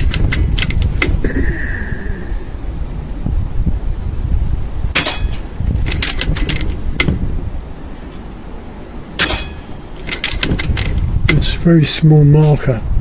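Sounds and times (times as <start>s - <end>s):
air rifle shots: 0.0s - 1.2s, 4.9s - 7.3s, 9.1s - 11.4s
mechanical clicks: 0.0s - 1.2s, 5.0s - 7.2s, 9.2s - 11.4s
wind rumble on microphone: 0.0s - 13.0s.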